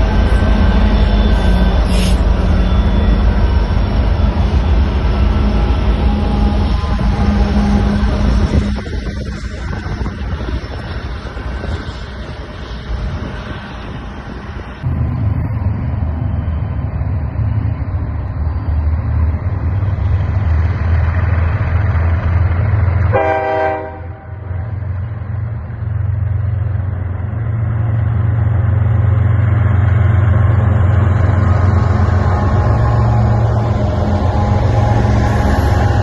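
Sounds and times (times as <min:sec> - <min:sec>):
diesel locomotives rumbling: 0:00.0 - 0:36.0
train air horn blast: 0:23.1 - 0:24.5.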